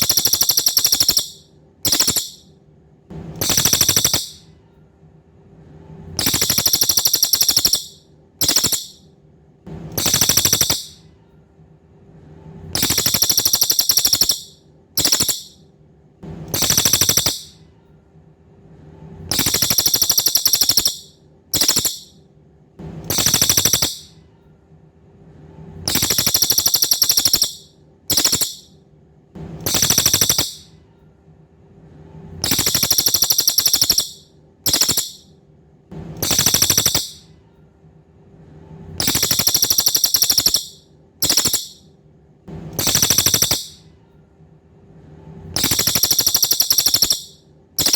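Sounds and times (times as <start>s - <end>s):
bird song buzzing trills: 0.0s - 2.4s, 3.4s - 4.4s, 6.2s - 9.0s, 10.0s - 11.0s, 12.8s - 15.6s, 16.5s - 17.6s, 19.3s - 22.1s, 23.1s - 24.1s, 25.9s - 28.7s, 29.6s - 30.7s, 32.4s - 35.3s, 36.2s - 37.2s, 39.0s - 41.8s, 42.8s - 43.8s, 45.6s - 47.9s.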